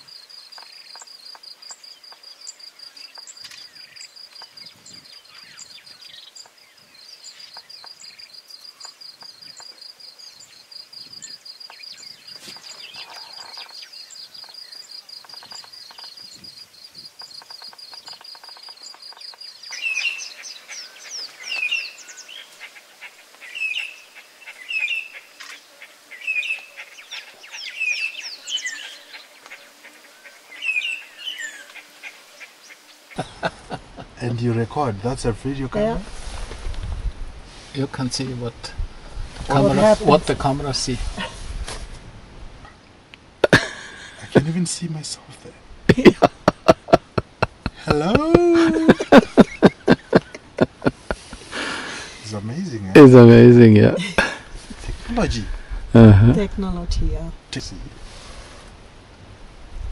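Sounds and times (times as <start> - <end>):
bird chirping: 0.0 - 34.5
high insect trill: 0.0 - 34.6.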